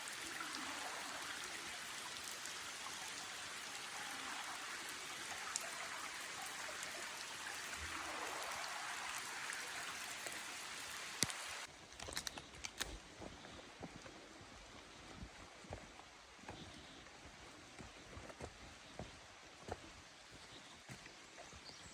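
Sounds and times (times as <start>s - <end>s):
rain hissing: 0.0s - 12.9s.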